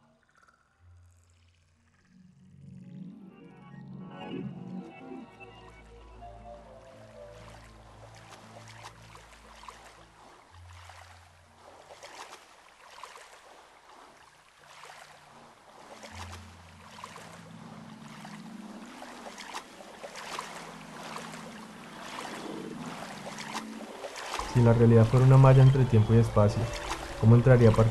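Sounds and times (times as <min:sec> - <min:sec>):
water sloshing and splashing: 0:05.4 - 0:27.9
low held bass notes: 0:24.4 - 0:27.9.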